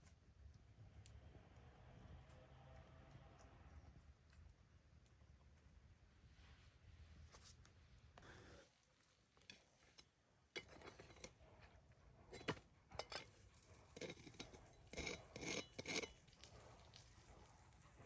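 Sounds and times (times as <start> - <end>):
scraping and clinking: 9.5 - 11.6, 12.2 - 17.4.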